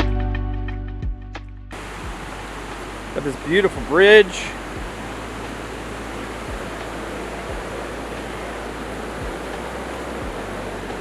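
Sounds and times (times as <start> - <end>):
soft low thumps: 0.9 - 3.2, 3.8 - 8.1, 8.8 - 11.0
waterfall roaring: 1.8 - 11.0.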